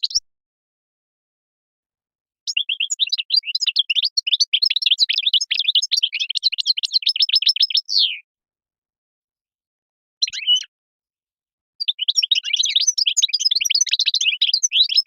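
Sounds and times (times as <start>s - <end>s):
finch twittering song: 0.0s - 0.2s, 2.5s - 8.2s, 10.2s - 10.7s, 11.8s - 15.0s.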